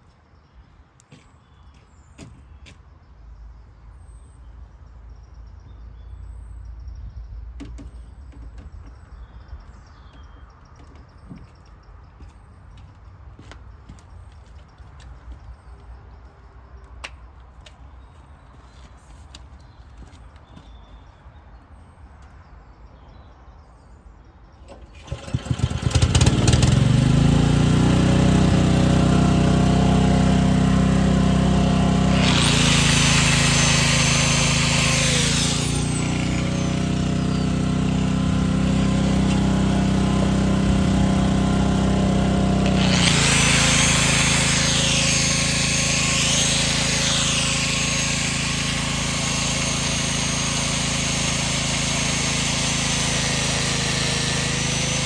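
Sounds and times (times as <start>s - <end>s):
motor running: 25.0s - 55.0s.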